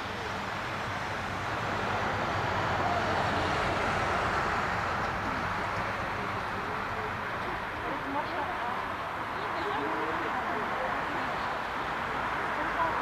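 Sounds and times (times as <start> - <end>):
jet airliner engines passing: 0.0 - 7.8.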